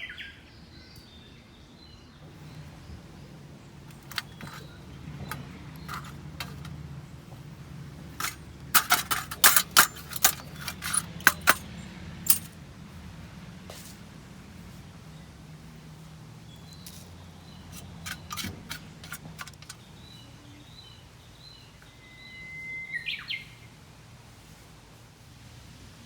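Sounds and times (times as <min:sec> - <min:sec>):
metal camping gear clinking: 0:02.3 - 0:12.6, 0:16.6 - 0:19.9.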